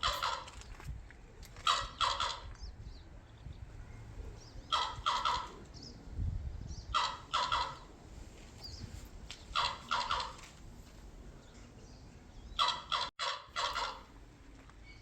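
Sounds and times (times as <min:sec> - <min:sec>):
bird calling harshly: 0:01.6 - 0:02.5, 0:04.6 - 0:05.6, 0:06.8 - 0:07.9, 0:09.5 - 0:10.5, 0:12.5 - 0:14.1.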